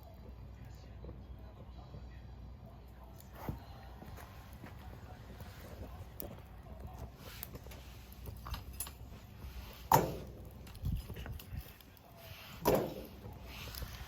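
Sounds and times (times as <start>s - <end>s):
fire crackling: 0.0s - 14.0s
handling noises: 3.1s - 14.0s.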